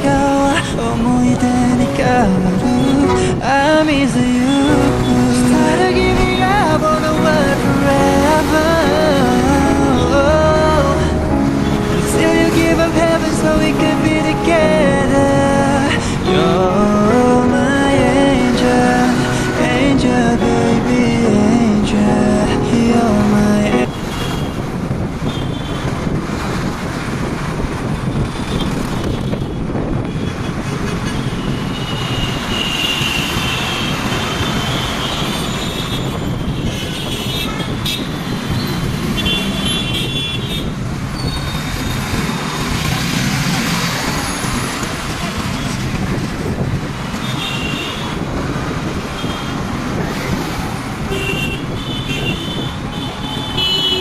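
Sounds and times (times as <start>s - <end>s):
busy road traffic: 0.0s - 54.0s
vehicle horns honking: 23.7s - 25.9s, 29.0s - 42.0s, 47.2s - 48.2s, 49.0s - 49.8s, 51.0s - 54.0s.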